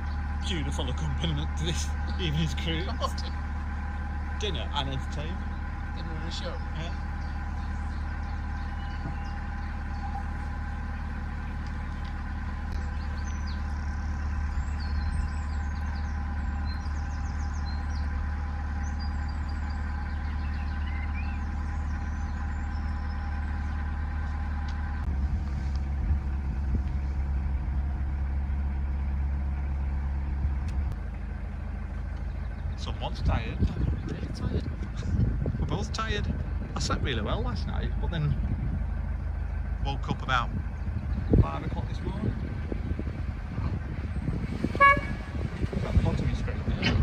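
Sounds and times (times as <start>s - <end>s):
boat diesel engine running: 0.0s - 47.0s
faint bird chirps: 5.1s - 23.9s.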